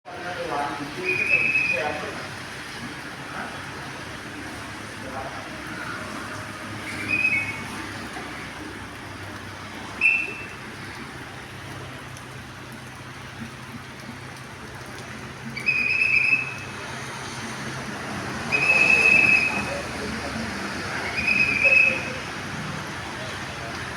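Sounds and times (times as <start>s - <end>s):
sharp whistle blasts: 1.0s - 1.8s, 6.9s - 7.7s, 10.0s - 10.6s, 15.6s - 16.7s, 18.5s - 19.8s, 21.0s - 22.2s
low engine hum: 1.2s - 23.9s.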